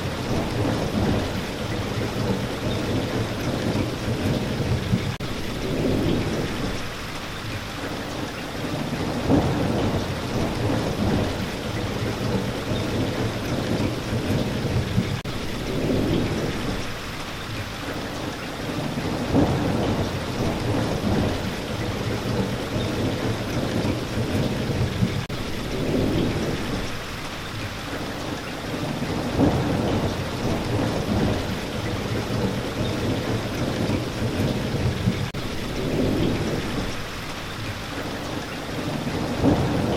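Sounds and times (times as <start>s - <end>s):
low thunder rumbling: 0.0s - 7.4s, 8.5s - 17.5s, 18.7s - 27.7s, 28.6s - 37.7s, 38.3s - 39.9s
heavy rain: 0.0s - 39.9s.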